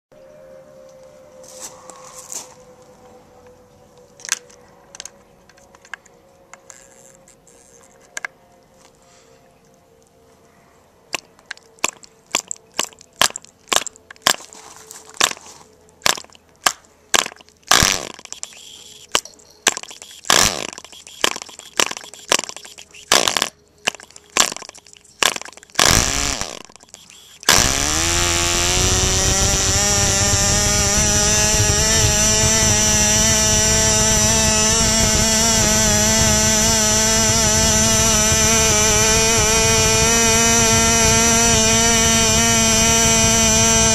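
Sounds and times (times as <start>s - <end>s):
small glow engine popping and running: 11.1s - 14.5s, 16.0s - 43.9s.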